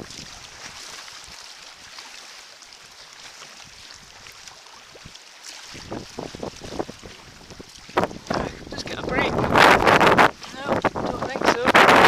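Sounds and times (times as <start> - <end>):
water splashing around kayak: 0.0 - 12.0
wind buffeting microphone: 4.9 - 12.0.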